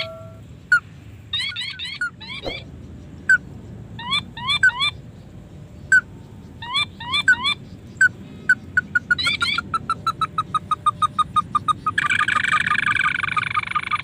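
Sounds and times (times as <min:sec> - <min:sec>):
crake calls: 0:00.0 - 0:03.4.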